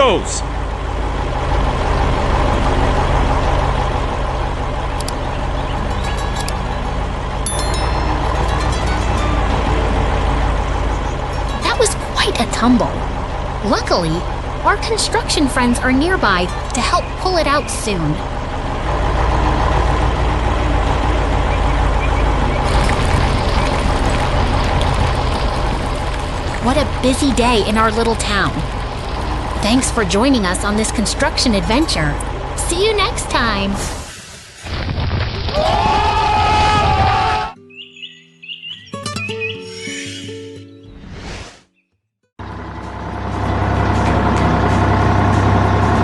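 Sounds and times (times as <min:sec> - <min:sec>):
heavy vehicle engine running: 0:00.0 - 0:34.8, 0:42.4 - 0:46.0.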